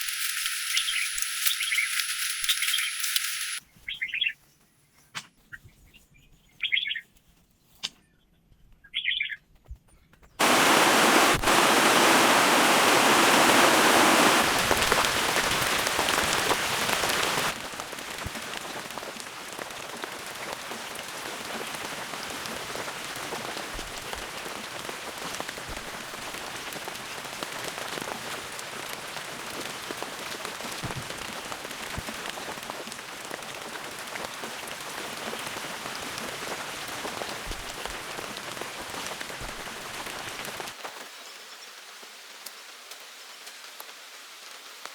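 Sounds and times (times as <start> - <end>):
heavy rain: 0.0 - 3.6, 10.4 - 41.0
raindrops pattering: 0.0 - 3.6, 10.4 - 41.1.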